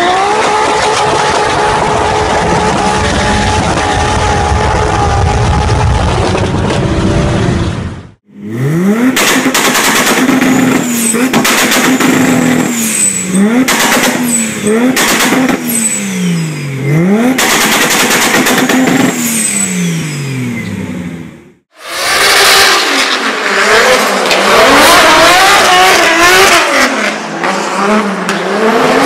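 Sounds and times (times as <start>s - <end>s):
exhaust pops and bangs: 9.2s - 12.3s.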